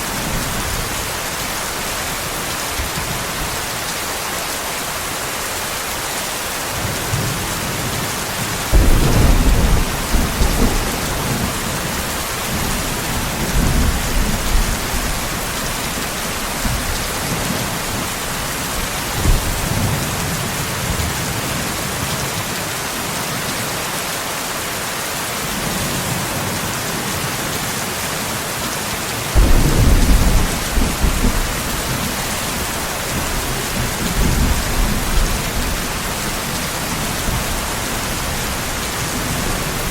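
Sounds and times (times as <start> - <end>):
heavy rain hissing: 0.0 - 39.9
thunder rumbling: 6.8 - 20.5, 29.4 - 39.9.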